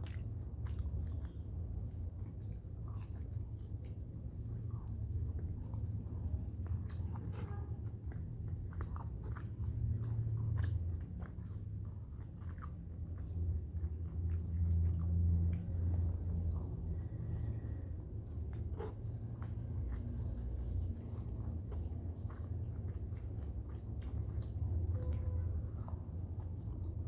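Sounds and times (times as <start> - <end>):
person chewing food: 0.0 - 27.0
low rumble: 8.0 - 27.0.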